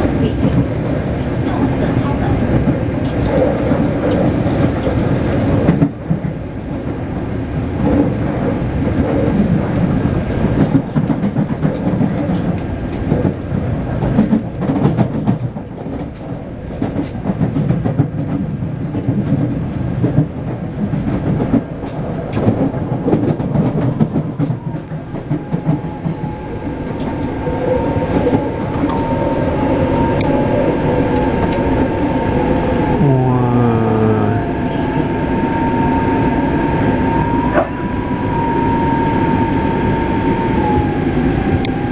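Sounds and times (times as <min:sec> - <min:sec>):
wheels clattering on rails: 0:00.0 - 0:32.5
train rumble: 0:00.0 - 0:41.9.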